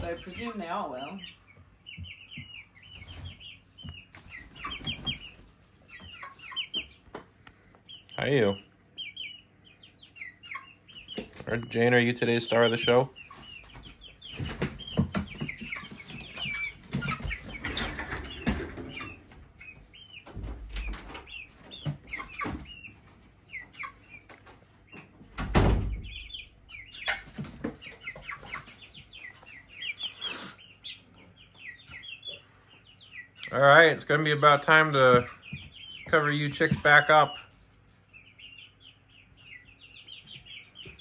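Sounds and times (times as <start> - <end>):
chickens clucking: 0.0 - 41.0
chicks peeping: 0.0 - 41.0
birds knocking and scratching: 13.3 - 22.8, 27.0 - 28.9.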